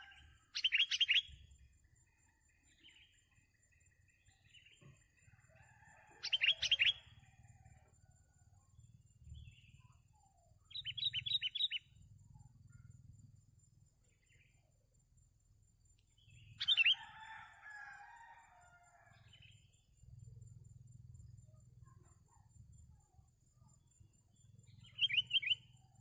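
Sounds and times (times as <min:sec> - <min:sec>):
songbird chirps: 0:00.0 - 0:20.3, 0:21.4 - 0:26.0.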